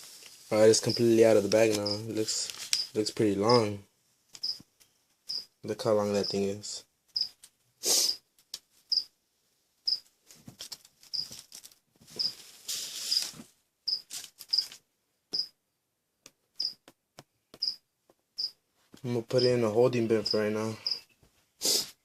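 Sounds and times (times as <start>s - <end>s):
cricket chirping: 0.8s - 1.1s, 1.8s - 2.1s, 2.8s - 3.7s, 4.4s - 4.6s, 5.3s - 5.6s, 7.2s - 7.4s, 11.1s - 11.3s, 13.9s - 14.7s, 15.3s - 15.6s, 16.6s - 16.8s, 17.6s - 17.8s, 20.2s - 21.1s
handling rustles and knocks: 10.1s - 14.8s.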